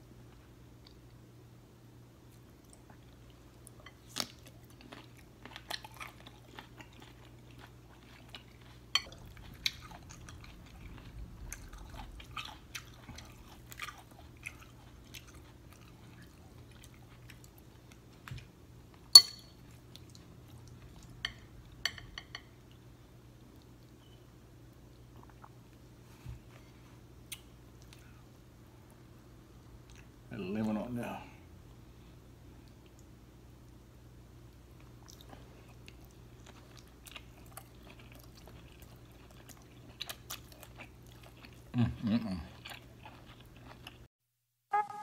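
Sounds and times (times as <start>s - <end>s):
person chewing wetly: 2.6s - 18.5s, 25.1s - 25.8s, 34.8s - 44.1s.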